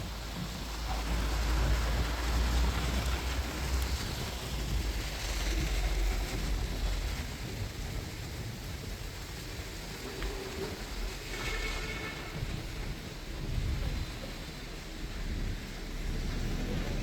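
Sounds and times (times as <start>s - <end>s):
bus engine rumble: 0.0s - 17.0s
rain falling: 0.0s - 17.0s.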